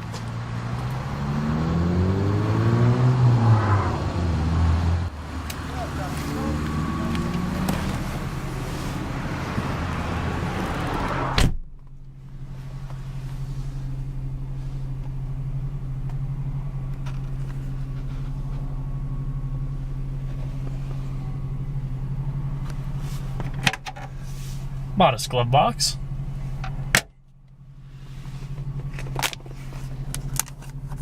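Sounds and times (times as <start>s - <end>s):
car engine idling: 0.0s - 31.0s
car door shutting: 5.3s - 11.9s.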